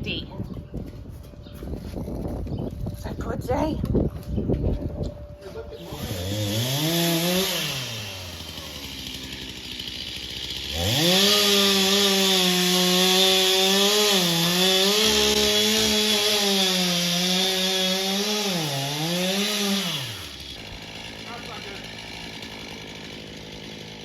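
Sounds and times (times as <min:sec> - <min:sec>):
chainsaw cutting into tree: 0:05.8 - 0:24.0.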